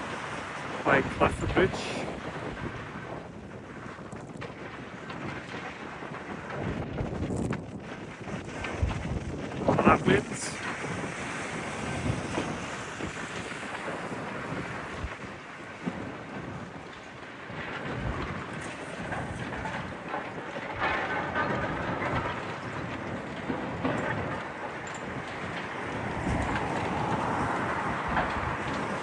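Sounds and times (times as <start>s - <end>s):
city rumble: 0.0s - 3.0s, 9.4s - 15.8s, 17.4s - 29.0s
crackles and knocks: 0.0s - 29.0s
wind buffeting microphone: 0.0s - 29.0s.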